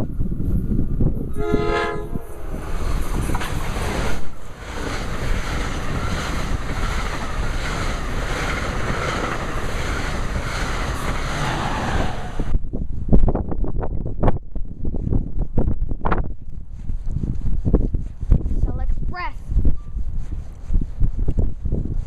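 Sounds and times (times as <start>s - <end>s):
train passing at speed: 0.0s - 12.8s
wind buffeting microphone: 0.0s - 22.0s.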